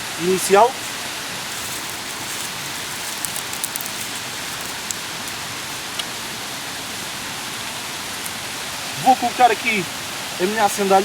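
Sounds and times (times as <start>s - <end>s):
rain falling: 0.0s - 11.0s
dry sticks clicking: 0.9s - 6.1s.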